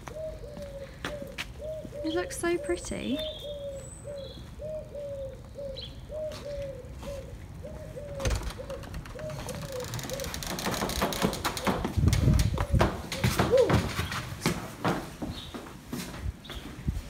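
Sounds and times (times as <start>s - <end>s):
footsteps on threshold: 0.0s - 2.0s, 10.6s - 17.0s
bird calling: 0.0s - 11.8s.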